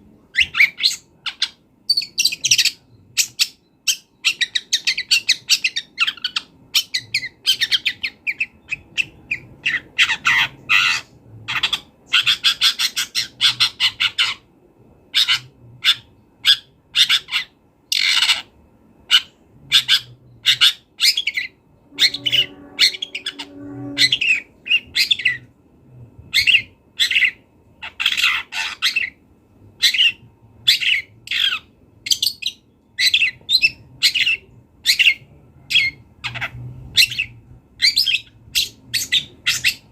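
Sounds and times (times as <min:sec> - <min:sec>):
shrike singing harsh chattering notes: 0:21.9 - 0:25.4.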